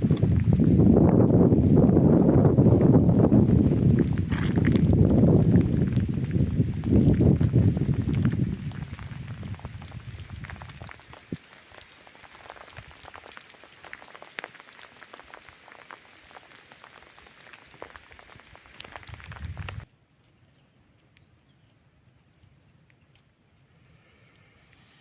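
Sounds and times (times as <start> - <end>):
rain falling: 0.0 - 19.9.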